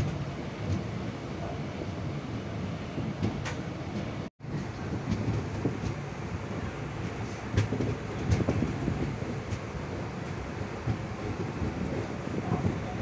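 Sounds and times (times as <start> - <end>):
light clicks of train: 0.0 - 13.0
passenger train rumbling: 0.0 - 13.0.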